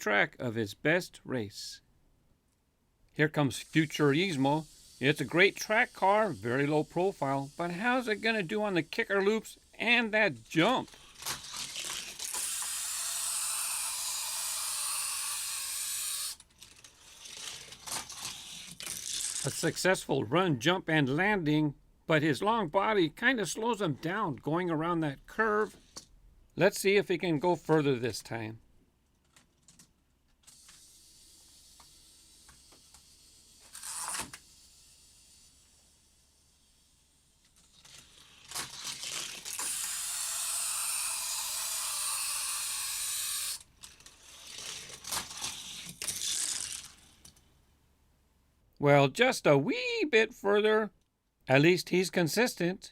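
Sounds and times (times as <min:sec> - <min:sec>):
toy car wheels rolling on track: 0:03.5 - 0:19.8, 0:30.4 - 0:47.5
toy car clicking on track: 0:10.6 - 0:19.7, 0:29.2 - 0:35.7, 0:36.6 - 0:47.5.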